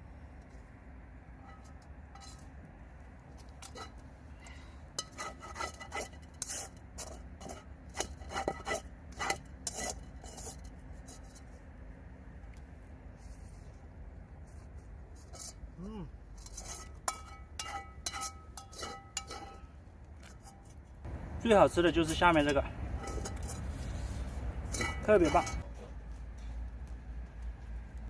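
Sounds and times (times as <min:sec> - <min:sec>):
utensils clinking on cookware: 0:16.5 - 0:19.6, 0:24.7 - 0:25.6.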